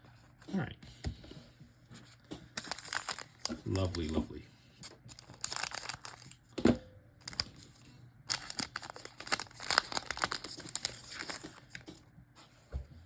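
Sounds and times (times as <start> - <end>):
wrapper crinkling and tearing: 2.6 - 4.3, 4.9 - 6.4, 7.2 - 11.8.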